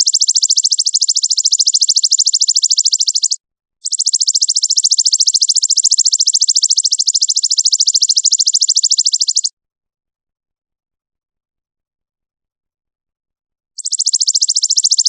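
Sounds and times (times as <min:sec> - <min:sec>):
high rapid buzzy bird trill: 0:00.0 - 0:09.5, 0:13.8 - 0:15.0.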